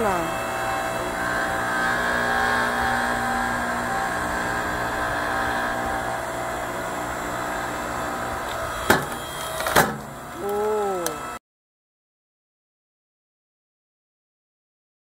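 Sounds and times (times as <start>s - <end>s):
log splitter motor humming: 0.0s - 11.4s
wood splitting crack: 8.0s - 10.7s.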